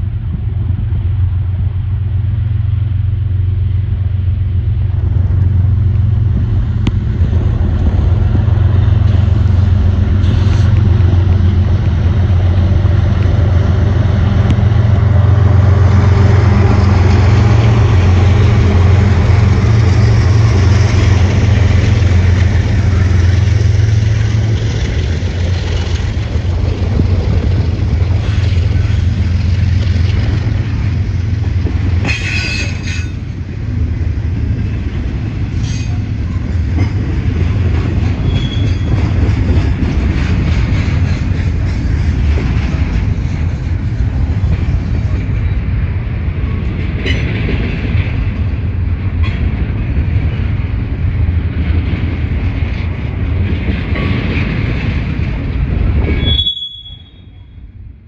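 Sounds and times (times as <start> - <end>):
diesel locomotive engine drone: 0.0 - 58.0
train wheels rumbling on rail: 0.0 - 58.0
wheel screech: 56.1 - 57.3.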